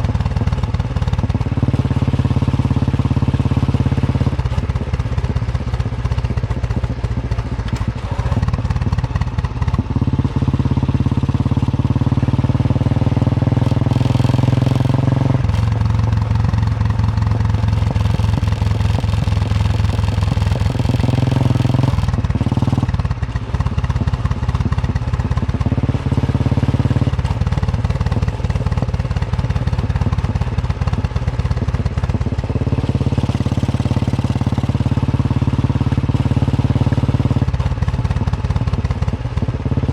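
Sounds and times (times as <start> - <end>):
motorcycle engine thumping: 3.8 - 10.4, 13.4 - 34.9.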